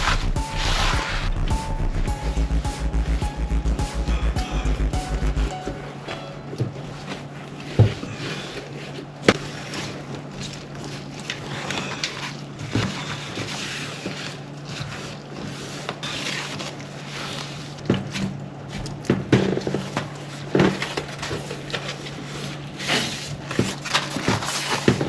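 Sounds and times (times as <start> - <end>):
low hum and hiss: 0.0 - 7.8.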